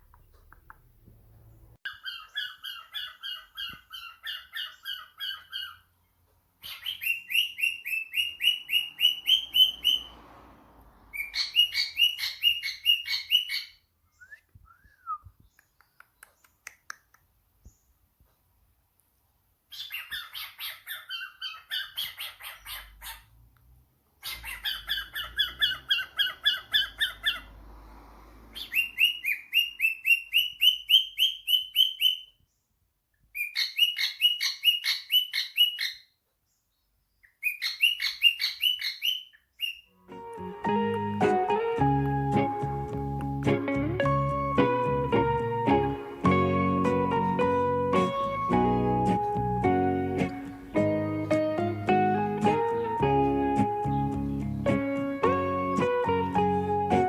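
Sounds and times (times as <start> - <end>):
cockatiel chirping: 1.9 - 6.0, 6.6 - 10.1, 11.1 - 14.3, 19.7 - 23.3, 24.2 - 27.5, 28.5 - 32.4, 33.3 - 36.1, 37.2 - 39.9.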